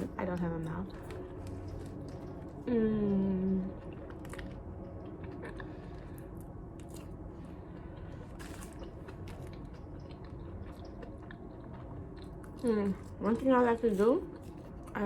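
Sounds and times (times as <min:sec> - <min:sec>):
person chewing food: 0:03.7 - 0:15.0.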